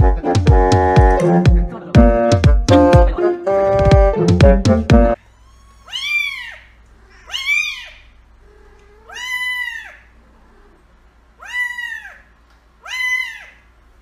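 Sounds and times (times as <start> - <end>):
kitten meowing: 5.3 - 10.7, 11.4 - 13.6.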